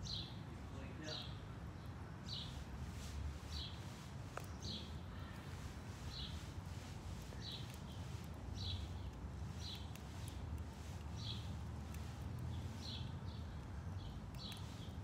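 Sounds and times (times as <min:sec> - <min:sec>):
songbird high chirp: 0:00.0 - 0:02.6, 0:03.5 - 0:15.0
faint clicks: 0:14.2 - 0:14.7.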